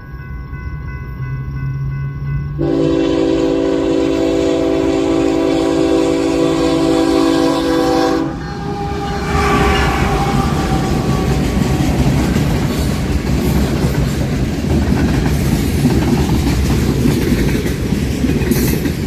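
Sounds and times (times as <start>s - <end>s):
train wheels rumbling and clattering: 0.4s - 19.0s
locomotive air horn: 2.6s - 12.2s.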